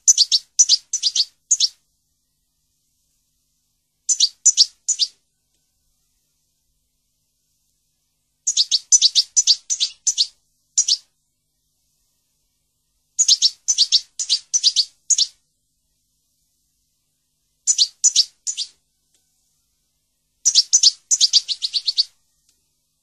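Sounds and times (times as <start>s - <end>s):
bird chirping: 0.0s - 1.8s, 4.0s - 5.2s, 8.4s - 11.1s, 13.2s - 15.4s, 17.6s - 18.8s, 20.4s - 22.2s.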